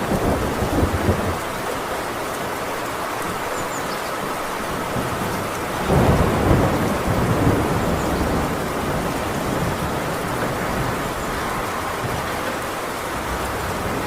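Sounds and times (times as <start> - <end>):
heavy rain on a tin roof: 0.0 - 14.0
thunder rumbling: 4.9 - 14.0.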